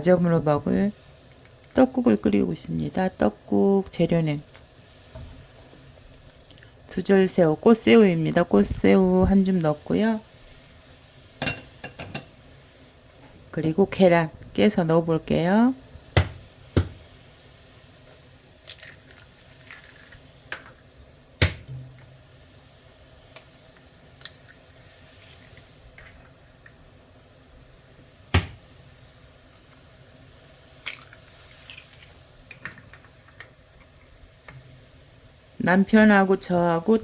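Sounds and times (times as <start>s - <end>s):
eggs knocking on pot: 16.2s - 17.0s.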